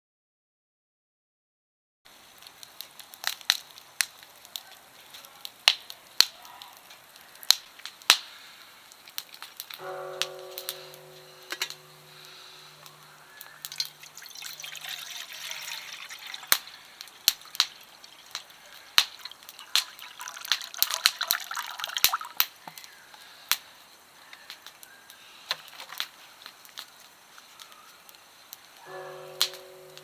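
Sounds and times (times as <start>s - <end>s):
water pouring and dripping: 9.0s - 22.9s.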